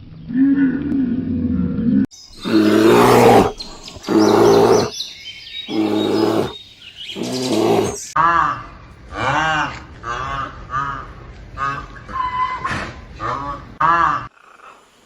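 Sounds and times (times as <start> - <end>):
small birds chirping: 2.1 - 8.2
large animal deep calls: 2.4 - 4.9, 5.7 - 14.6.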